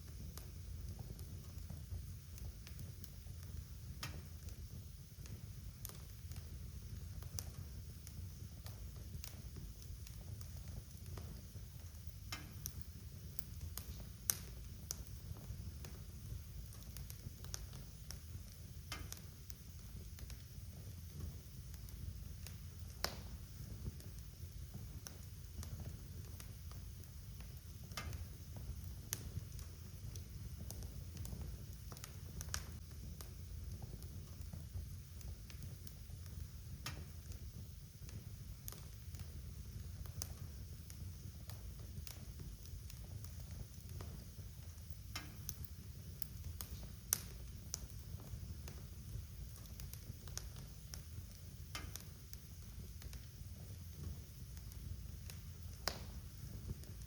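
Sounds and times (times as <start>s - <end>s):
fire pops and snaps: 0.0s - 57.0s
low rumble of burning: 0.0s - 57.0s
wood fire crackling: 0.0s - 57.0s
sharp pops from logs: 51.7s - 52.1s.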